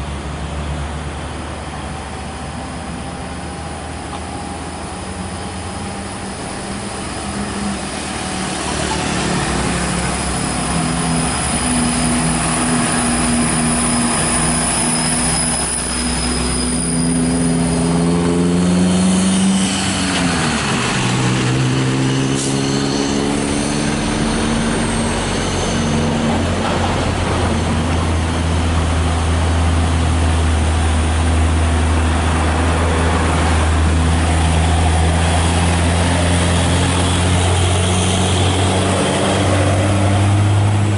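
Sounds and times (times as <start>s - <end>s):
diesel truck engine under load: 0.0s - 40.9s.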